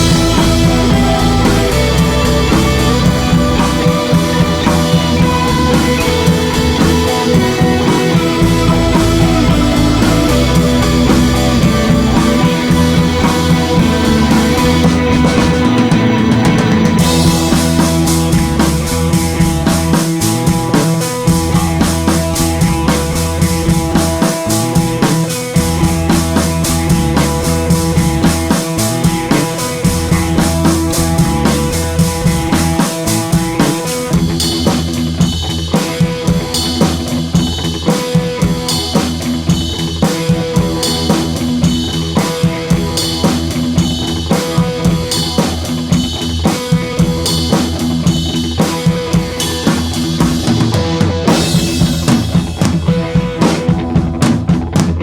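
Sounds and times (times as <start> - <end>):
instrumental music with drum kit: 0.0 - 55.0.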